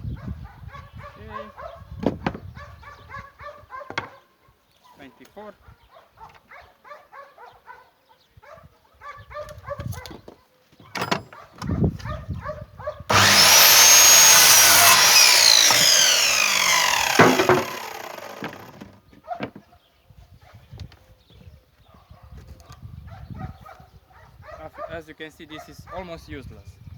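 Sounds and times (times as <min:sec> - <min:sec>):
electric saw cutting wood: 0:13.1 - 0:18.9.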